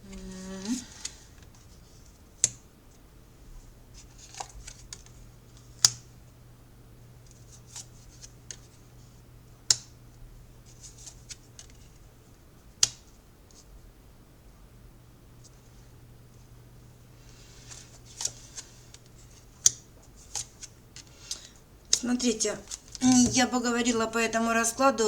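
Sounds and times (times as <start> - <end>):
cards clicking and rustling: 4.0 - 6.1, 17.6 - 23.4.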